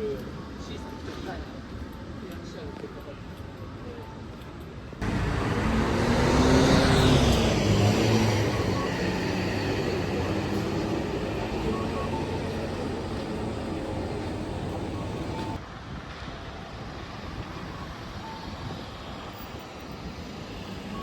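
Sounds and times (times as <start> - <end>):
vehicle passing by: 5.0 - 15.6.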